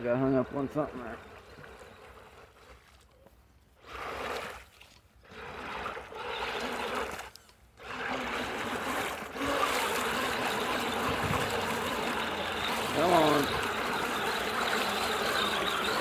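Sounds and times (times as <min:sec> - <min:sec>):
rc truck motor revving: 0:00.0 - 0:02.7, 0:03.8 - 0:04.6, 0:05.2 - 0:16.0
tires splashing through mud: 0:03.8 - 0:16.0.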